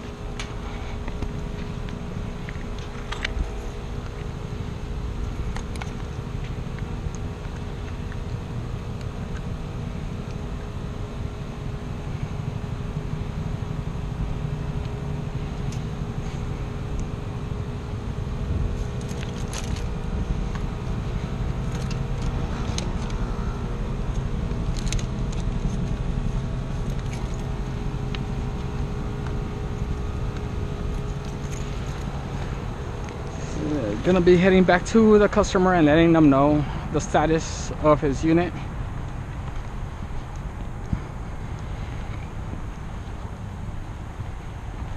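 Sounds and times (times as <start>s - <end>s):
heat pump unit droning: 0.0s - 44.9s
sharp clicks and rattles: 18.6s - 34.4s.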